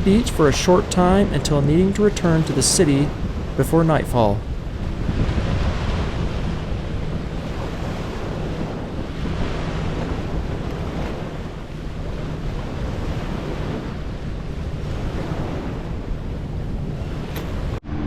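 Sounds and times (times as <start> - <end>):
wind buffeting microphone: 3.0 - 3.6, 4.4 - 17.8.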